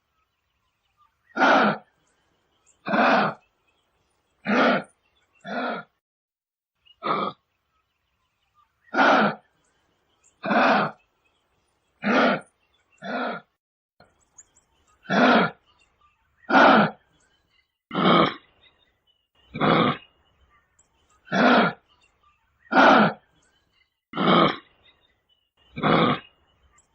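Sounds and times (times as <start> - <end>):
giraffe calls: 2.8 - 3.5, 15.0 - 15.6.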